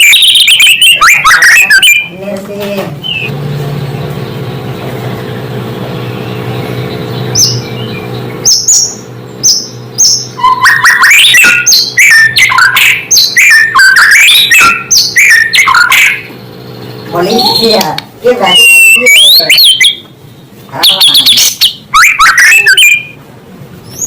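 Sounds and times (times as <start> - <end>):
bird whistling song: 0.0 - 2.1, 3.0 - 3.3, 6.0 - 17.8, 18.4 - 20.1, 20.8 - 23.2
steady low hum: 0.0 - 22.0, 23.0 - 24.0.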